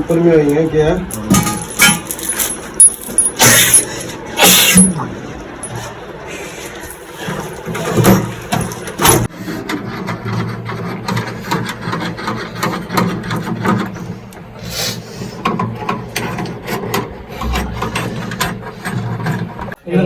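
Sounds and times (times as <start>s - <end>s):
scraping and rubbing: 6.7s - 19.8s.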